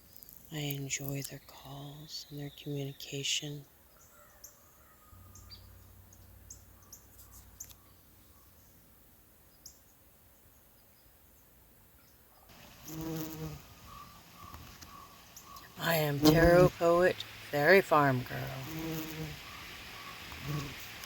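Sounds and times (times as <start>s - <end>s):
bird chirps: 1.4s - 8.8s, 13.8s - 16.5s, 19.4s - 20.7s
insect buzzing: 12.5s - 21.0s.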